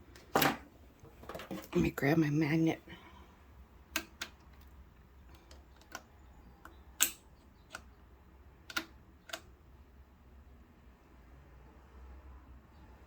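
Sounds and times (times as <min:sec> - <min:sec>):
magnet tool clicking on metal: 0:05.4 - 0:07.9.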